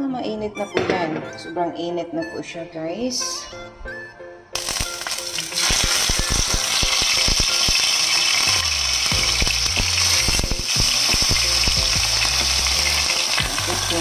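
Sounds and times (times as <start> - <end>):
fish sizzling in hot oil: 4.6 - 14.0.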